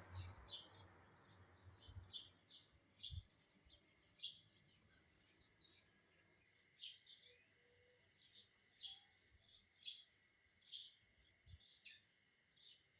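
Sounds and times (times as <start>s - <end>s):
sparrows chirping: 0.0s - 12.9s.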